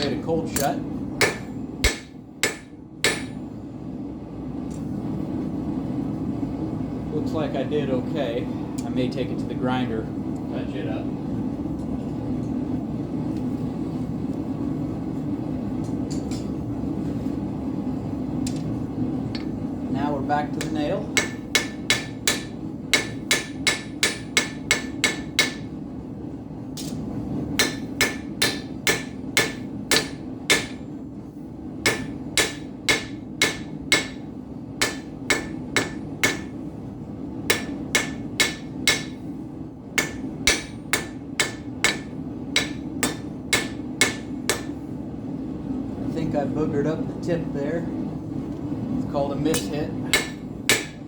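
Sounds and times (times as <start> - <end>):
forge low hum: 0.0 - 51.0
hammer ringing on steel anvil: 0.6 - 3.4, 31.9 - 34.2, 34.8 - 36.5, 37.5 - 39.2, 40.0 - 44.8, 49.5 - 51.0.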